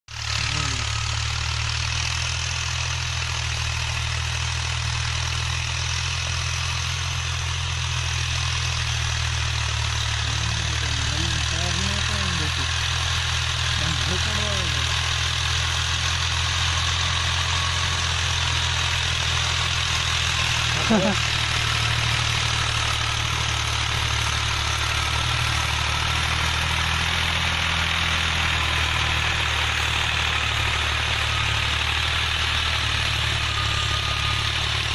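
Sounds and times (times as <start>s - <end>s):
tractor engine droning: 0.0s - 34.9s.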